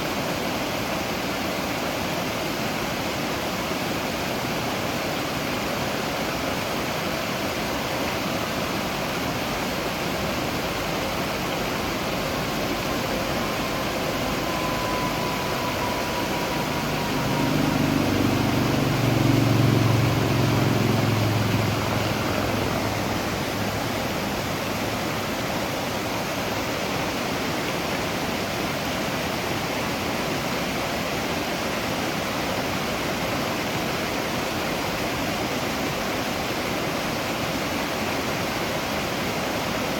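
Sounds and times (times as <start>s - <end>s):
waterfall rushing: 0.0s - 39.9s
low rumble: 9.8s - 26.2s.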